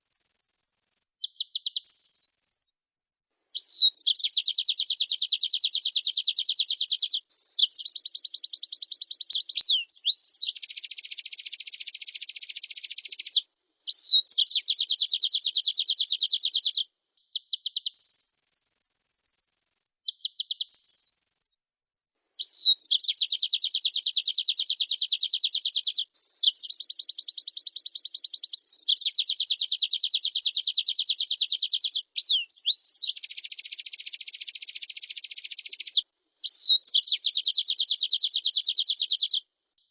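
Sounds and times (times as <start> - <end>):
white-eye trilling song: 1.9 - 2.7.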